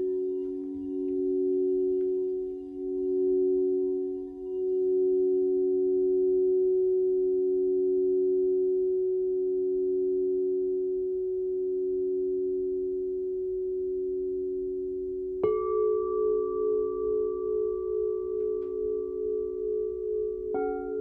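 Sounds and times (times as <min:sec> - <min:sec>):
singing bowls ringing: 0:00.0 - 0:10.6, 0:15.4 - 0:21.0.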